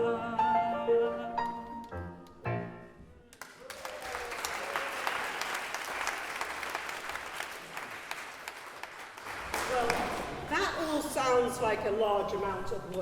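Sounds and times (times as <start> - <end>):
audience applauding: 3.3 - 10.6.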